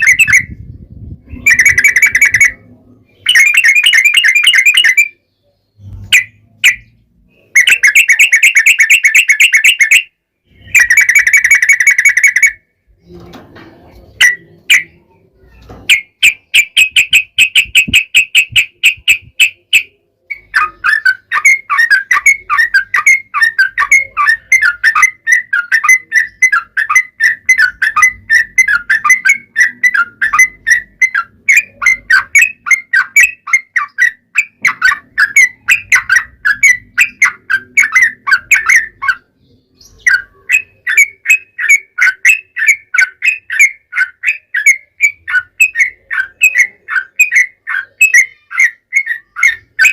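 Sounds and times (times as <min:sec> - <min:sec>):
bird rolling chatter: 0:10.7 - 0:39.3.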